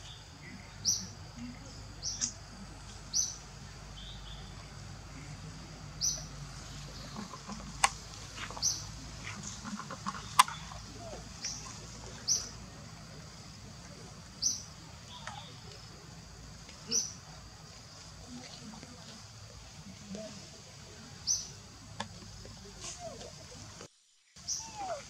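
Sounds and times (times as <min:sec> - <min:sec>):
faint outdoor background noise: 0:00.0 - 0:25.0.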